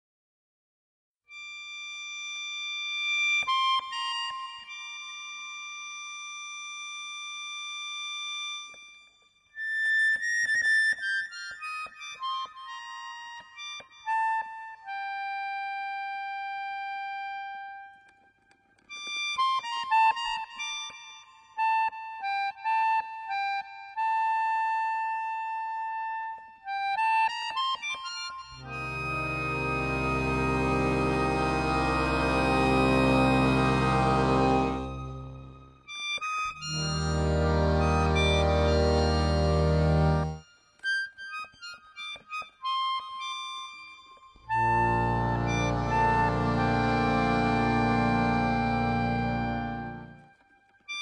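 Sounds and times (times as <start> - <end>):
high wind instrument melody: 28.6 - 35.9, 36.5 - 40.4, 44.5 - 50.3.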